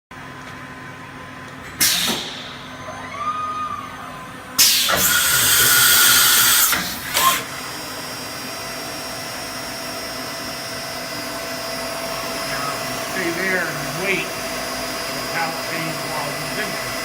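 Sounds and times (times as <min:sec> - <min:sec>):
machine whir with high whine: 0:00.2 - 0:17.0
loud machine hiss: 0:01.8 - 0:02.6, 0:04.6 - 0:17.0.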